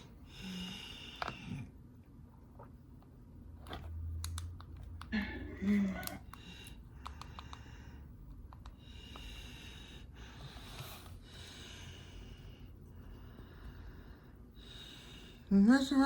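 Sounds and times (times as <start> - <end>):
person breathing softly: 0.0 - 1.7, 6.2 - 15.5
steady low hum: 0.0 - 16.0.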